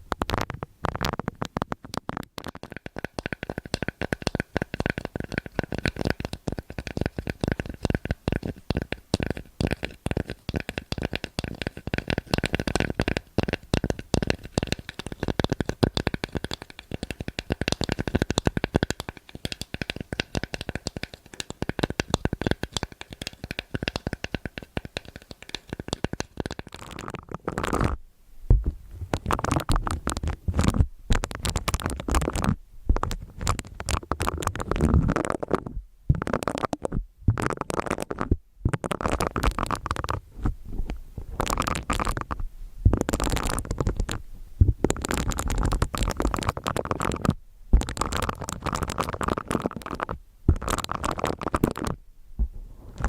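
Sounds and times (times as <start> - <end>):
close scratching and rubbing: 2.1 - 28.0, 28.8 - 44.2.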